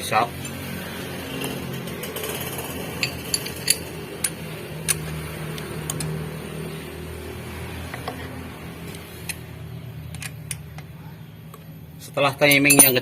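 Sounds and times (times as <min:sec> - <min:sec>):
socket wrench clicking: 0:03.0 - 0:06.2, 0:08.9 - 0:10.9.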